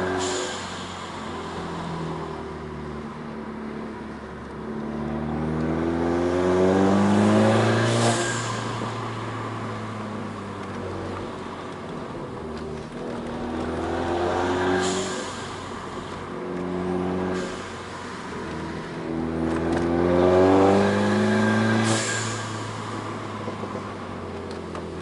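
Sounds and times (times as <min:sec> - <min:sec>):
car engine revving under load: 0:00.0 - 0:25.0
exhaust crack: 0:07.1 - 0:25.0.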